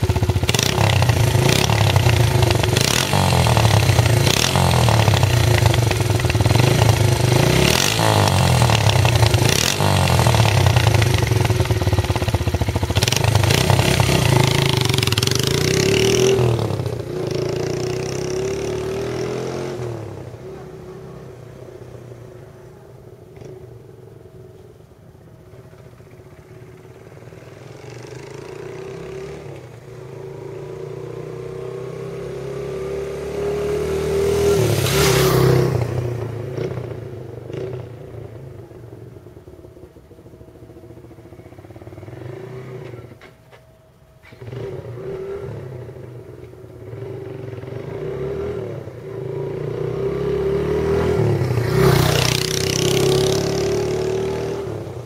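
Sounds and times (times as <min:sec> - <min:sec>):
motorcycle engine running: 0:00.0 - 0:21.2, 0:33.9 - 0:43.2.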